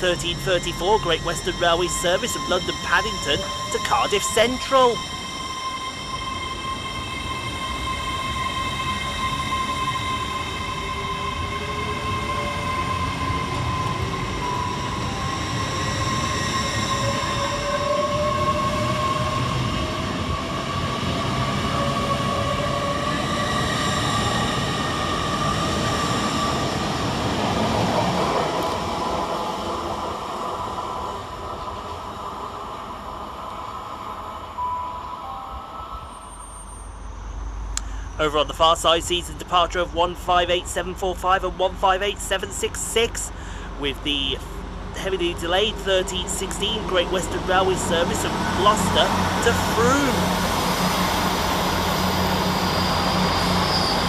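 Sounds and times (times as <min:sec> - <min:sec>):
whining traction motors: 0:00.0 - 0:35.1, 0:44.4 - 0:54.0
rumble of wheels on rail: 0:00.0 - 0:54.0.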